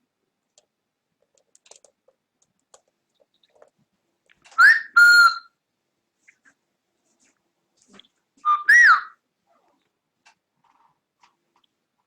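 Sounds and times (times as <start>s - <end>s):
cockatiel whistling: 4.6s - 5.5s, 8.4s - 9.1s.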